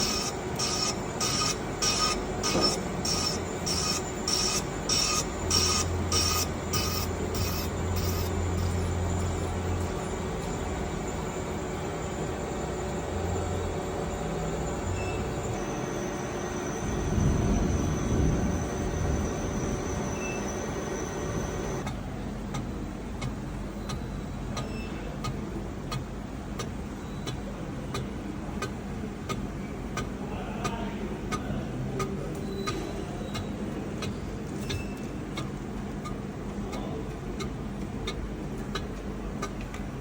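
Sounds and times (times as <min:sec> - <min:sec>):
light regular ticking: 0:00.0 - 0:09.2, 0:21.8 - 0:40.0
machine humming and whining: 0:00.0 - 0:40.0.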